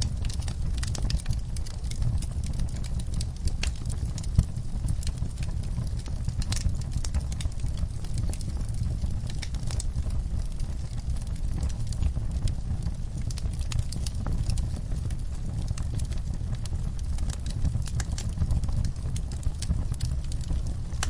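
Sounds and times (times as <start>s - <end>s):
low fire rumble: 0.0s - 21.0s
wood fire crackling: 0.0s - 21.0s.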